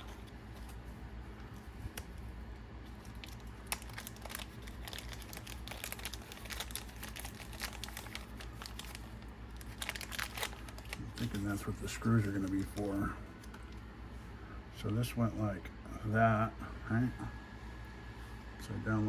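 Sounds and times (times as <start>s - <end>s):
plastic packaging crinkling: 0.0s - 13.8s.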